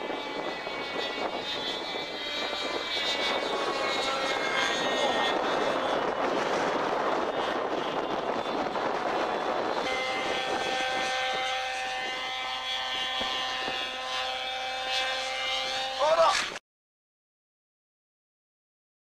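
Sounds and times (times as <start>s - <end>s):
radio-control helicopter whine: 0.0s - 16.6s.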